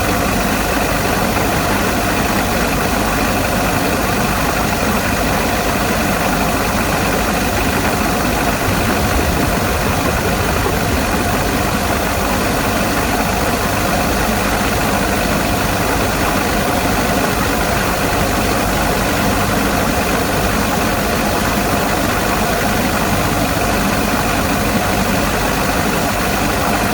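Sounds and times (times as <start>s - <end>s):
diesel engine idling: 6.4s - 15.8s.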